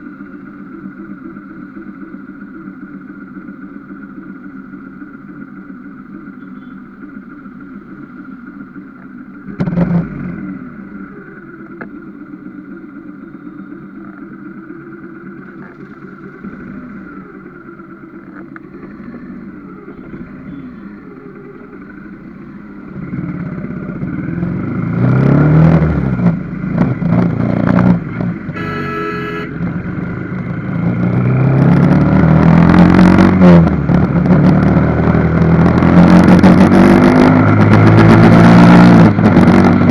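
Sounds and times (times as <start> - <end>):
vehicle engine and road noise: 0.0 - 39.9
horn-like tone: 28.4 - 31.4.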